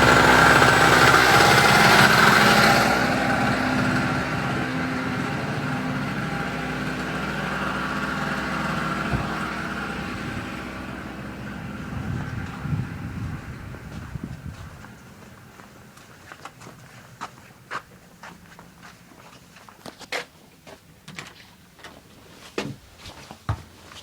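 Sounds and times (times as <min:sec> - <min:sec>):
small two-stroke generator engine: 0:00.0 - 0:18.1.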